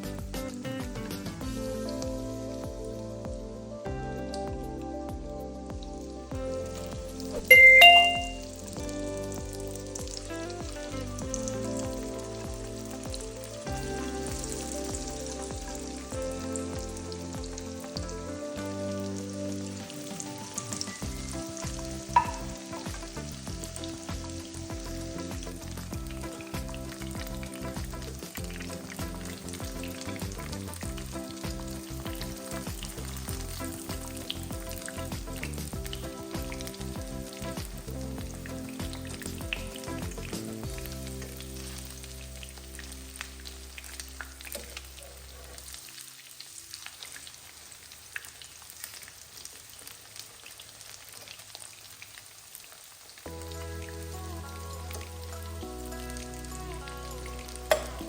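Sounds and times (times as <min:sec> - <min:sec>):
food frying in hot oil: 0:00.0 - 0:03.7, 0:06.6 - 0:58.0.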